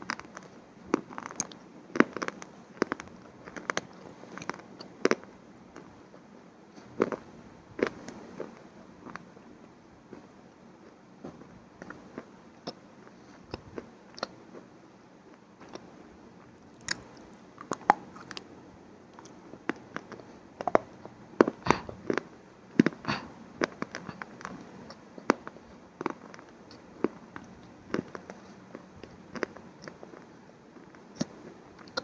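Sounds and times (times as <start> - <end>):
crunchy eating: 0.1 - 5.2, 16.6 - 25.4.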